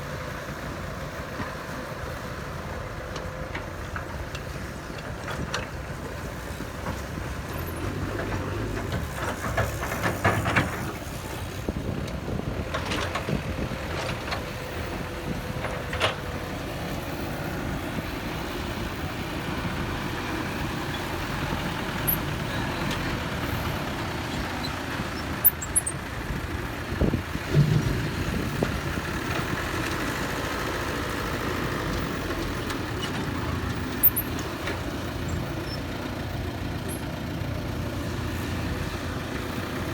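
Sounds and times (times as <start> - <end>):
metal clanks and knocks: 6.9 - 11.0, 27.4 - 29.6
heavy machinery running: 8.1 - 39.9.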